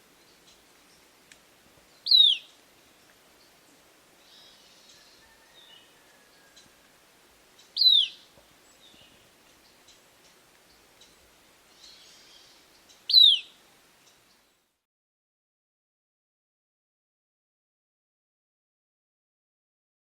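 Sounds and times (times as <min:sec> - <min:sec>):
faint bird chirps: 0:02.0 - 0:02.6, 0:04.2 - 0:06.9, 0:07.6 - 0:14.5.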